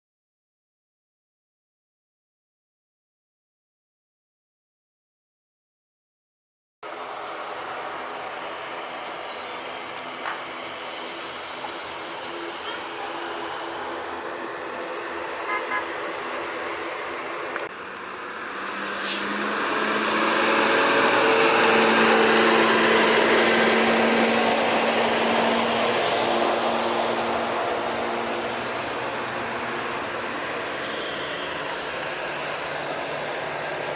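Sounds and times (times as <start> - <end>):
jet engine noise: 6.8 - 17.8, 18.5 - 33.9.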